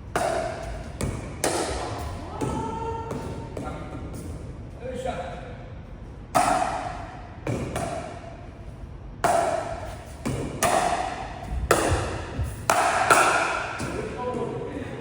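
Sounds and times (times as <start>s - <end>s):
paddles hitting plastic ball: 9.2s - 14.0s.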